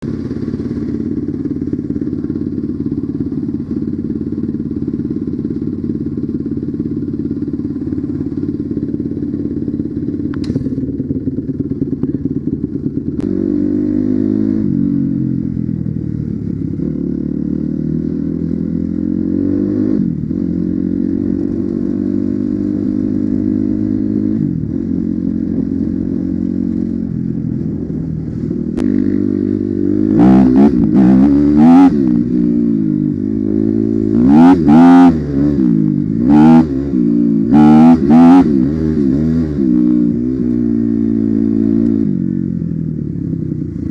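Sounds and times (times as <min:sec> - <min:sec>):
dirt bike engine revving: 0:12.9 - 0:15.6, 0:16.8 - 0:42.4.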